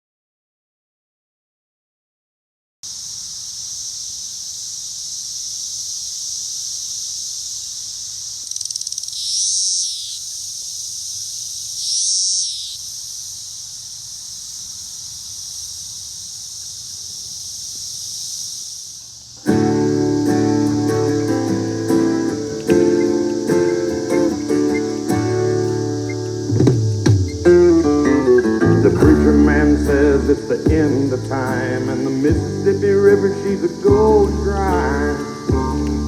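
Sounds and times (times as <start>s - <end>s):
cicadas droning: 2.8s - 36.0s
acoustic guitar music: 19.4s - 36.0s.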